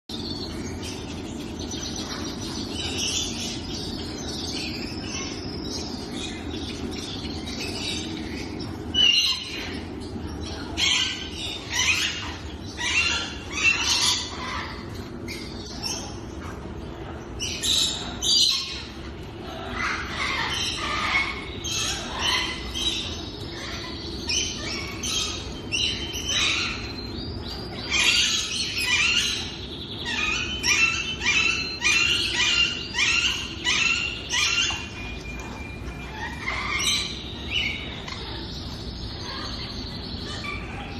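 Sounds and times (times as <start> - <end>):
birds calling: 0.1 - 40.9
steady low hum: 0.1 - 40.9.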